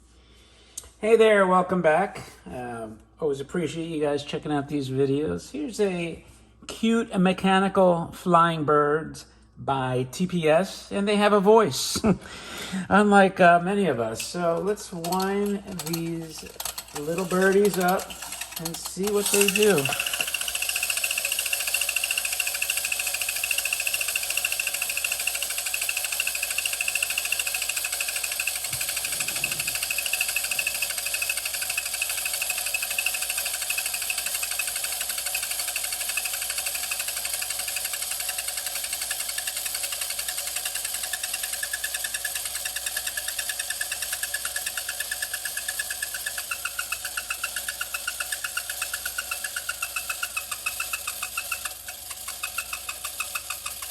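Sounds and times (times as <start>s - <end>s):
wind-up toy motor clattering: 13.8s - 53.9s.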